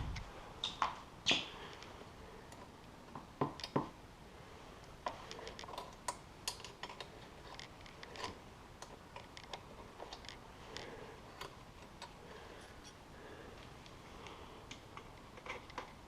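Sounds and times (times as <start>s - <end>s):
tools clicking and tapping on metal: 2.5s - 3.9s, 5.3s - 10.4s.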